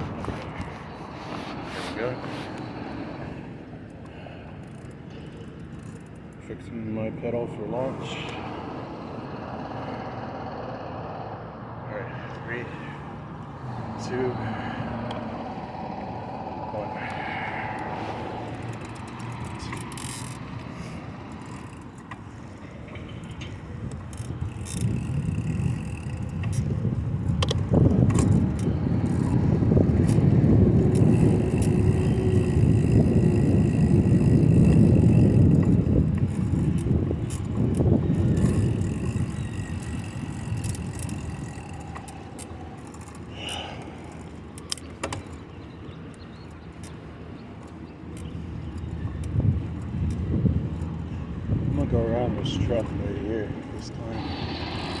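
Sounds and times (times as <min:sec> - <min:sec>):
bicycle clicks and rattles: 0:00.0 - 0:11.1, 0:12.5 - 0:55.0
wind and road rumble: 0:00.0 - 0:55.0.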